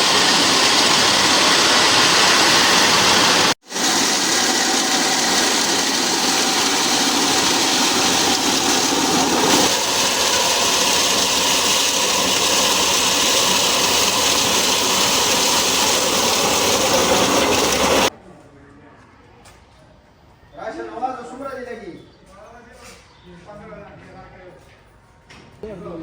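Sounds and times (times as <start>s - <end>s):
recycling machinery running: 0.0s - 18.1s.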